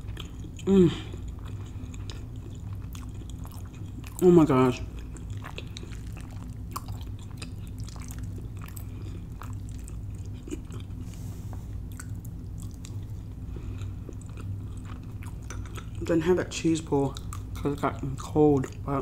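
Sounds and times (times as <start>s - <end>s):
person chewing food: 0.0s - 16.2s, 17.0s - 18.9s
steady low hum: 0.0s - 19.0s.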